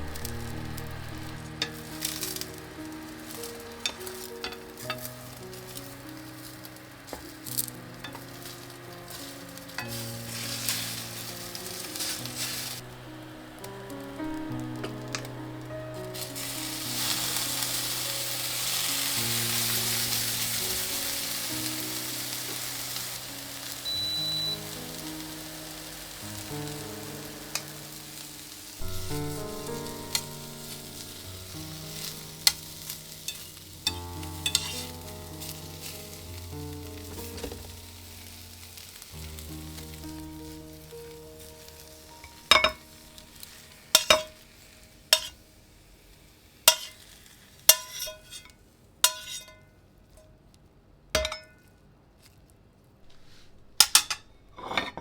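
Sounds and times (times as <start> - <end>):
soft background music: 0.0 - 48.4
food sizzling in a pan: 0.0 - 49.7, 53.0 - 54.8
utensil scraping a pan: 9.1 - 12.9, 31.4 - 36.0, 45.1 - 45.4, 46.7 - 47.1, 47.7 - 49.6, 53.0 - 55.0.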